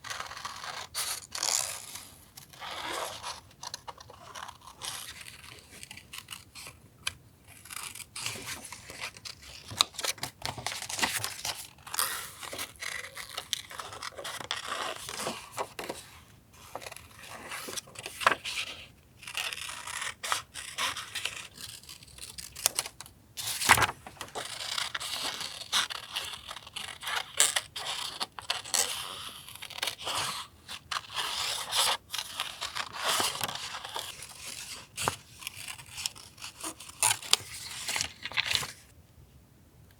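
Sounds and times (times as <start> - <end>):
paper rustling and tearing: 16.7 - 18.7, 19.3 - 29.2.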